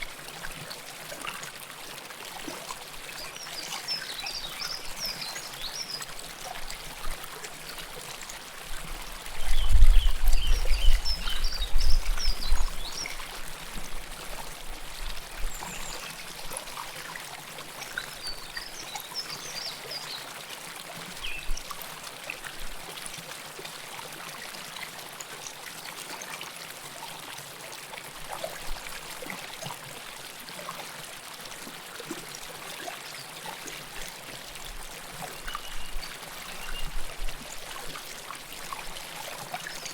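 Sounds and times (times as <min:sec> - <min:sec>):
river water babbling: 0:00.0 - 0:39.9.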